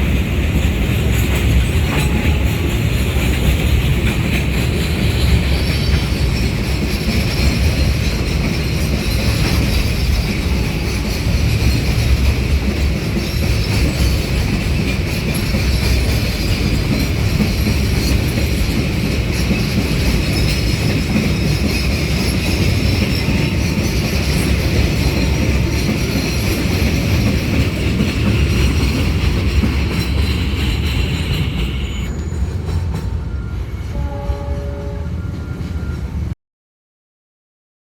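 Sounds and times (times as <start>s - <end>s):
freight train rumbling: 0.0s - 36.4s
high wheel squeal: 5.1s - 12.3s, 19.4s - 34.0s.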